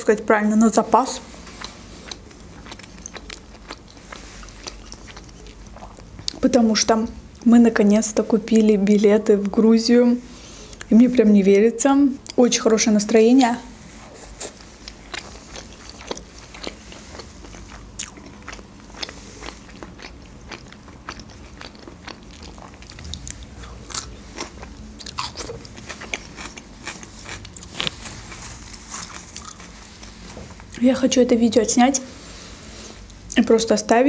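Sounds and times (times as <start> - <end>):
person chewing food: 1.2 - 6.4, 14.0 - 30.8.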